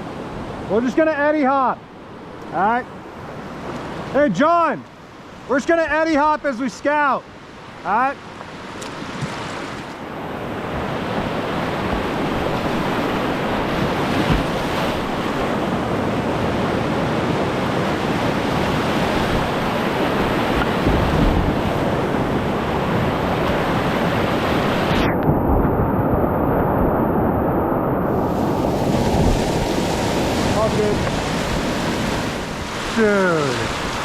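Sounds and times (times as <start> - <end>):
whitewater rushing: 9.0 - 34.0.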